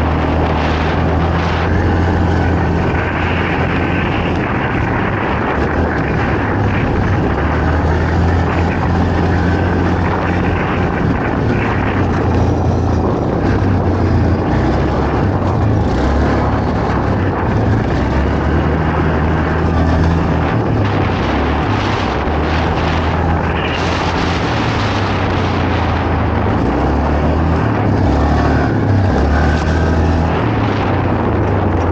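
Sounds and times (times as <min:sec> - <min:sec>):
quad bike engine revving: 0:00.0 - 0:31.9.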